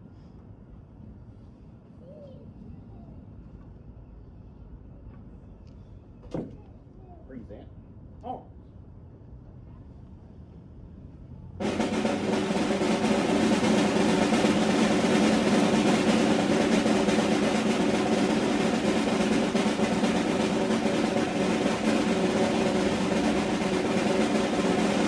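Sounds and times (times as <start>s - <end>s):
snare drum roll: 11.6s - 25.0s.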